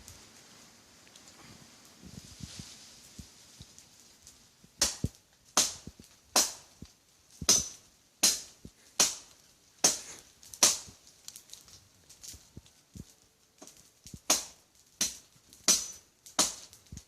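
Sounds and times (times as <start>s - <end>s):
machete chopping tree trunk: 4.8s - 6.7s, 7.4s - 11.0s, 14.2s - 16.7s.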